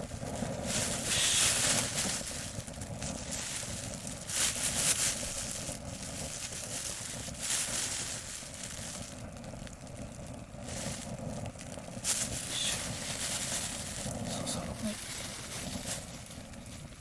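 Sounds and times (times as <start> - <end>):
fire rumble: 0.0 - 17.0
wood fire crackling: 0.0 - 17.0.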